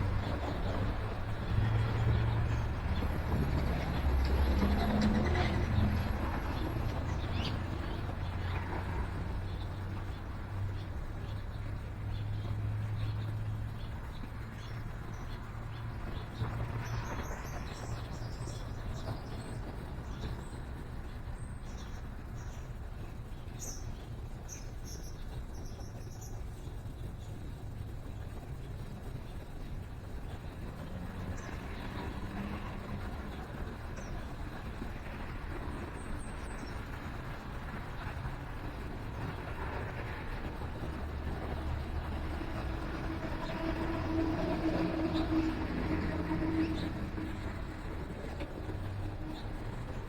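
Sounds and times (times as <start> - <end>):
road traffic rumble: 0.0 - 50.0
small birds chirping: 6.0 - 43.6.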